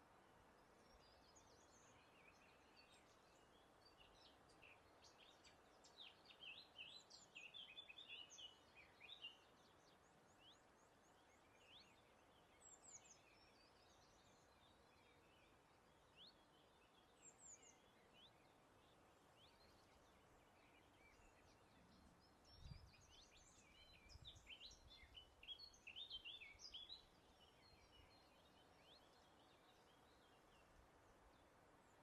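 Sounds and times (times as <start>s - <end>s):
small birds chirping: 0.0s - 32.0s
soft background hiss: 0.0s - 32.0s.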